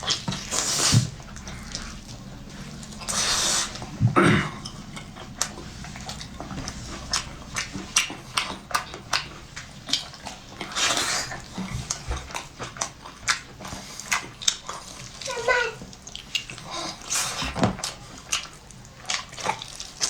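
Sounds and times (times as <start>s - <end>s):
chewing and crunching: 0.0s - 20.0s
breathy rush of noise: 0.5s - 7.8s.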